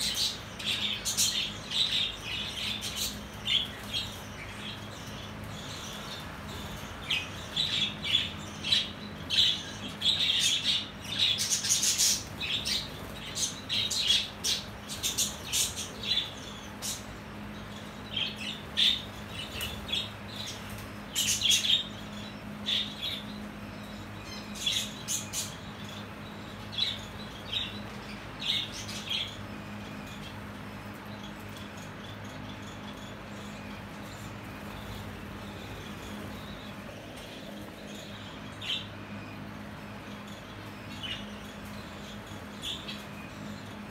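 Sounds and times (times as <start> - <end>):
lovebirds chirping and squawking: 0.0 - 43.9
steady low hum: 0.0 - 43.9.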